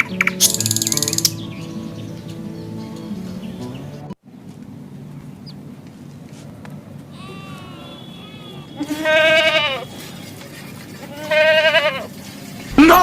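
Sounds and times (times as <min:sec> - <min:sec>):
goat bleating: 0:07.1 - 0:10.2, 0:11.0 - 0:12.1.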